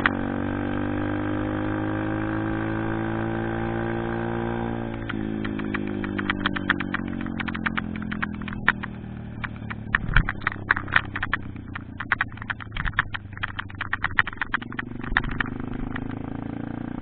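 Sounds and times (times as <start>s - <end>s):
small motorbike engine at low revs: 0.0s - 17.0s
clatter of clicks and rattles: 4.9s - 16.4s.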